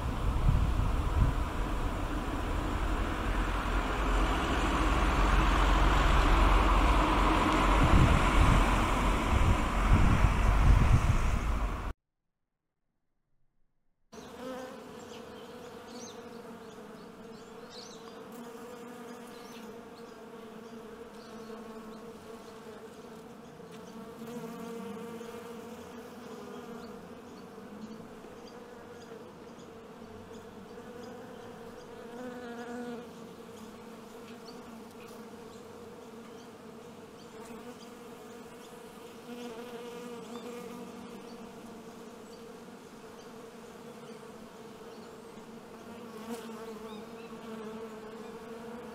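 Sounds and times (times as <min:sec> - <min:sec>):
honeybees buzzing: 0:00.0 - 0:11.9, 0:14.2 - 0:48.9.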